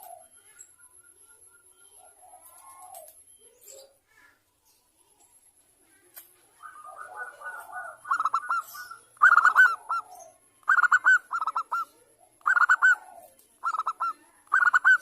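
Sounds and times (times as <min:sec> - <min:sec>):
dove cooing: 0:00.0 - 0:00.5, 0:01.8 - 0:04.0, 0:06.5 - 0:15.0.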